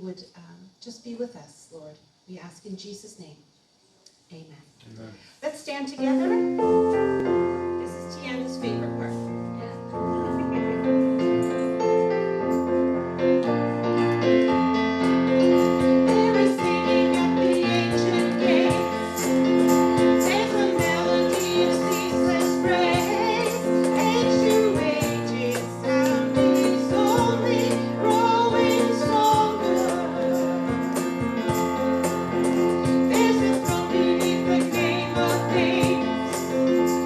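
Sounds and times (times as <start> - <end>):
keyboard chords: 6.1 - 37.0
worship singing: 15.8 - 31.2, 33.0 - 36.4.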